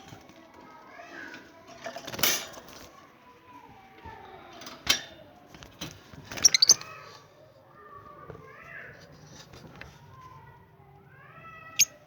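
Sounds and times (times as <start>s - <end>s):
wire bird cage rattling and clicking: 4.6s - 6.8s.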